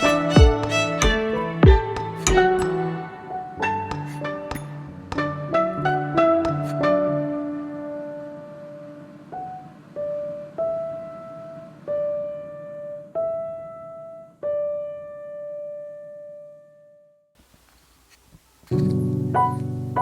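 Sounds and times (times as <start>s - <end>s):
slow solo piano notes: 18.7s - 20.0s.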